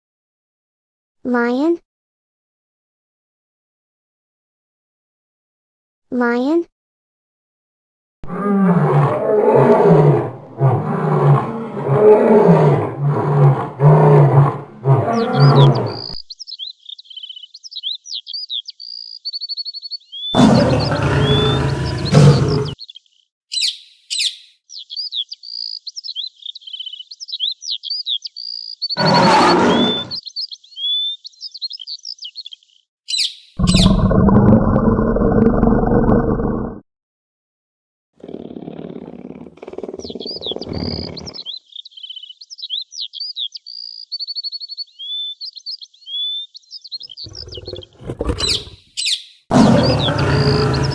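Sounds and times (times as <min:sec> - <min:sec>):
lion roaring: 0:08.3 - 0:16.2, 0:20.4 - 0:22.8, 0:29.0 - 0:30.2, 0:33.6 - 0:36.8, 0:38.2 - 0:41.4, 0:47.3 - 0:48.8, 0:49.5 - 0:50.9
birds chirping and trilling: 0:08.6 - 0:34.3, 0:38.4 - 0:50.9.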